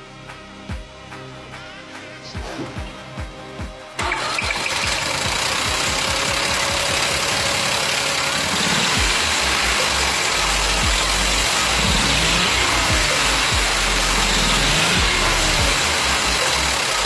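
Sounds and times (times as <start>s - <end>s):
background music: 0.0s - 17.0s
engine running loudly: 4.0s - 17.0s.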